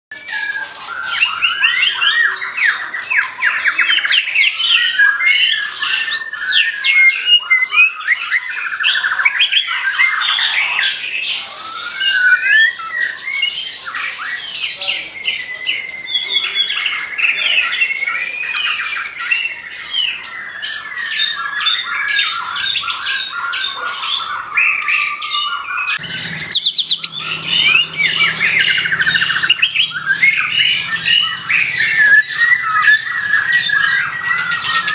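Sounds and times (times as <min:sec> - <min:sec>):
songbird singing: 0:00.1 - 0:34.9
low steady drone: 0:26.0 - 0:32.2.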